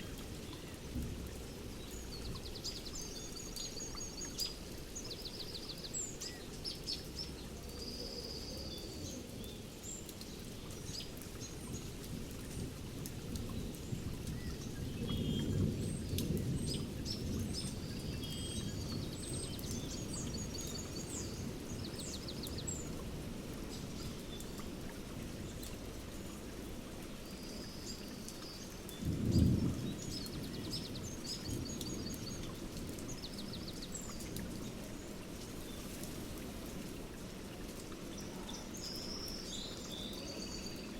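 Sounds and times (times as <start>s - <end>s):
steady rain: 0.0s - 40.9s
birds singing: 13.4s - 23.0s, 27.2s - 36.3s
thunder rumbling: 29.0s - 33.6s.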